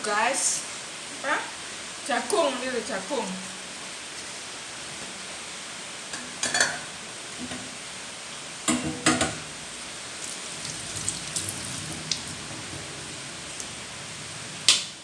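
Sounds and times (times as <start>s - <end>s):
heavy rain hissing: 0.0s - 6.1s, 6.9s - 8.7s, 9.4s - 15.0s
cooking pot clunking and rattling: 6.1s - 7.7s, 8.7s - 9.5s.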